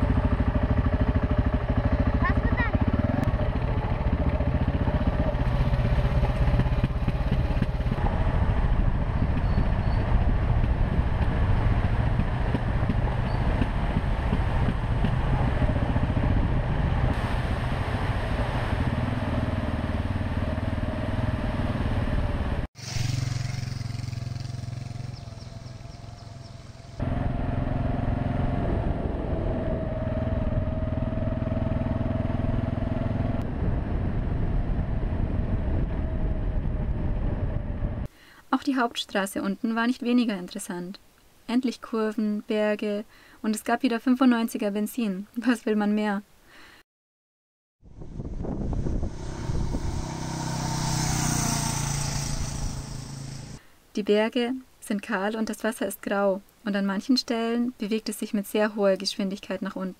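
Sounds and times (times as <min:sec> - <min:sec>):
motorcycle engine running: 0:00.0 - 0:17.2, 0:18.9 - 0:38.1, 0:47.9 - 0:53.6.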